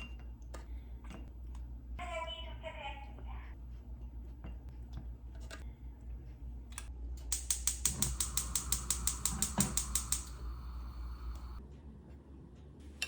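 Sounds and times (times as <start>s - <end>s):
ratchet clicking rapidly: 7.3s - 10.6s
steady hiss: 7.3s - 11.6s.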